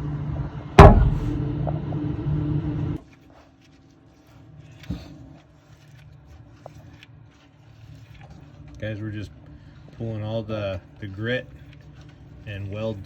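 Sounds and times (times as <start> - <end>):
knock: 0.8 - 1.4
car engine running: 0.8 - 1.5.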